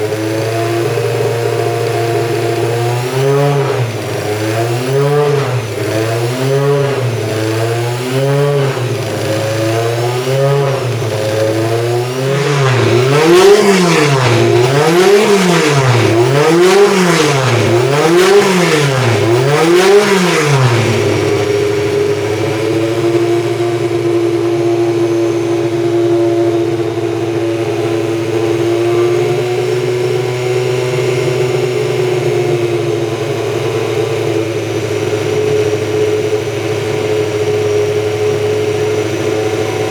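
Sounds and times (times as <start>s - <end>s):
race car engine revving: 0.0s - 39.9s
race car engine idling: 8.2s - 29.9s, 31.2s - 39.9s.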